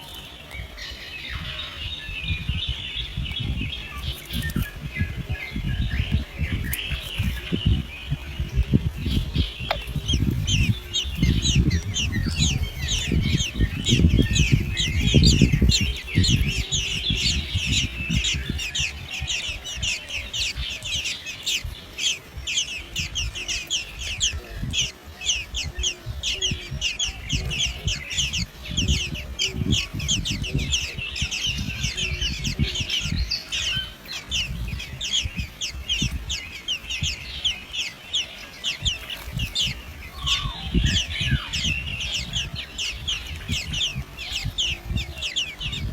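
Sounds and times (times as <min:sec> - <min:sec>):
baby birds cheeping: 0:00.0 - 0:45.9
low thumps and rumble: 0:02.1 - 0:21.7.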